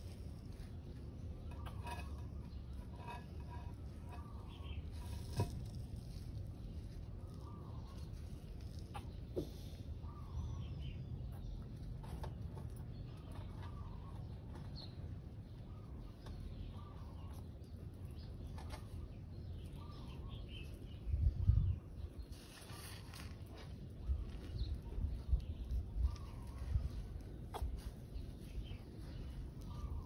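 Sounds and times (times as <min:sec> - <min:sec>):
faint bird calls: 0:26.0 - 0:30.0.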